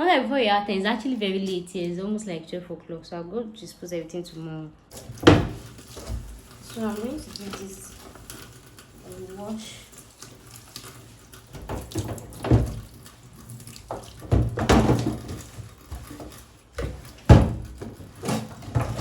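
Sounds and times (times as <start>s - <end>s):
tap water splashing in sink: 4.9s - 19.0s.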